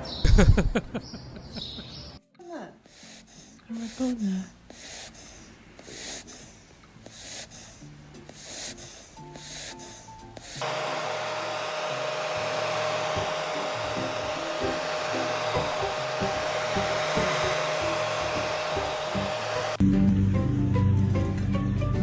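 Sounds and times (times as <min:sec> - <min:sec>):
small motor blowing air: 0:08.4 - 0:19.8.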